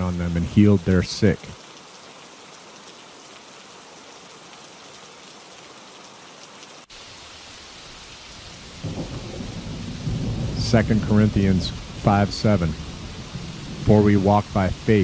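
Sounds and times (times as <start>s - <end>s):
steady rainfall: 0.0s - 15.0s
low rumble of thunder: 8.5s - 14.9s.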